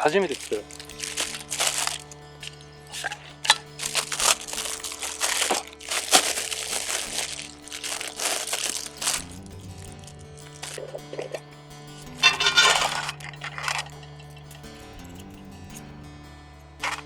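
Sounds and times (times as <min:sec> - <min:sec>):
plastic packaging crinkling: 0:00.0 - 0:11.4, 0:12.2 - 0:13.9
background music with held tones: 0:00.0 - 0:17.0.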